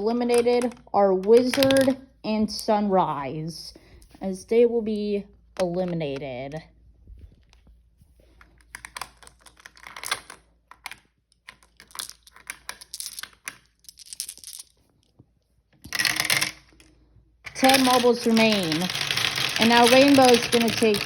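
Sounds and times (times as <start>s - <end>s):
marbles clicking and rattling: 11.5s - 14.8s, 15.8s - 16.9s, 17.5s - 21.0s.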